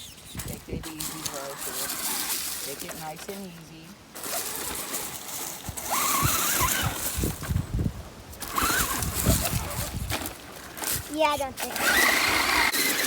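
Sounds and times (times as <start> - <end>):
electric motor whining: 4.1 - 7.8, 8.4 - 13.0.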